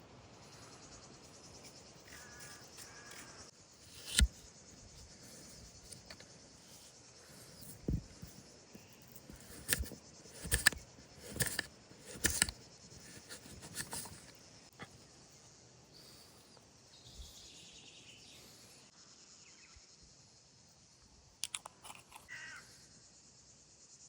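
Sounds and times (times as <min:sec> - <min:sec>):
knocks and scrapes: 0:01.6 - 0:14.4.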